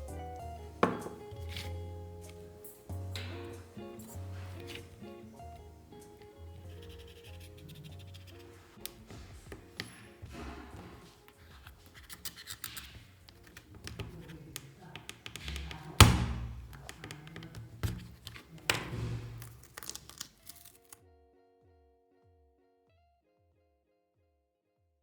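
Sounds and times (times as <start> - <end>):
background music: 0.0 - 22.0
plastic clicks scrapes and knocks: 6.7 - 21.0.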